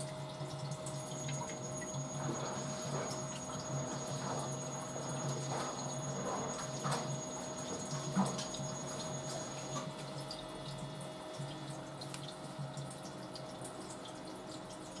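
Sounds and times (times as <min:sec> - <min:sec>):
motor hum: 0:00.0 - 0:13.3
water sloshing in drum: 0:00.2 - 0:10.3
washing machine drum turning: 0:00.9 - 0:10.0.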